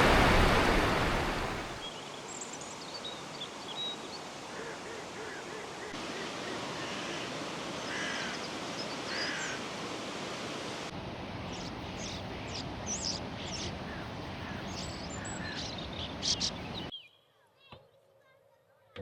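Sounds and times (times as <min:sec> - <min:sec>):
birds calling: 0:00.0 - 0:10.0, 0:11.5 - 0:17.2
flowing water rushing: 0:00.0 - 0:11.4.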